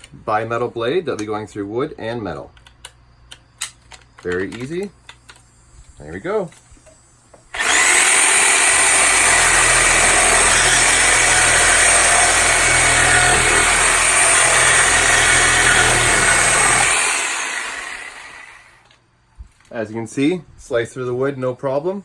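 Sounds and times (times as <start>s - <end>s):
reciprocating saw cutting: 7.5s - 18.8s.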